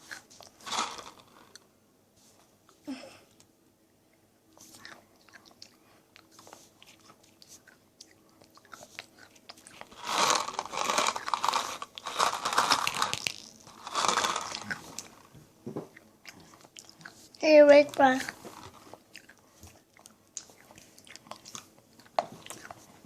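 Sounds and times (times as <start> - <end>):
child crunching something hard: 0.0 - 1.6, 6.4 - 15.3, 16.2 - 23.0.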